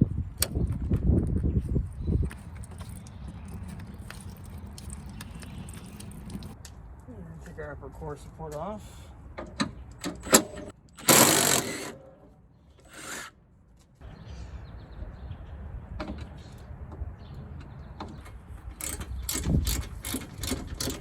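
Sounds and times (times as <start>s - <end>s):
metallic clicks and knocks: 17.6s - 21.0s.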